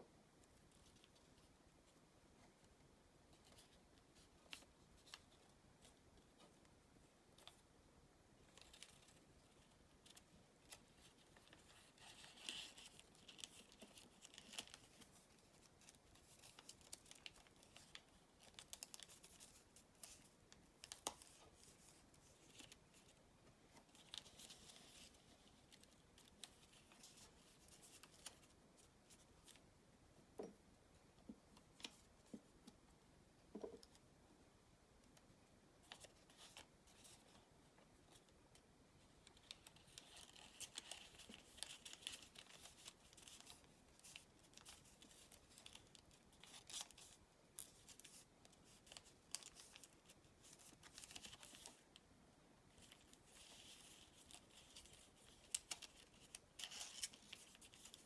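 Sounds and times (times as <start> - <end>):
paper crinkling and rustling: 8.4 - 29.7, 35.8 - 37.4, 39.2 - 52.0, 52.7 - 58.0.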